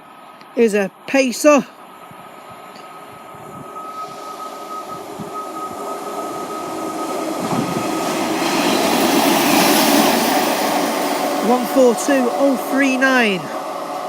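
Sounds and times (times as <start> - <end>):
train engine and wheel noise: 0.0 - 14.0
high-pitched tone: 2.7 - 9.2, 11.4 - 13.7.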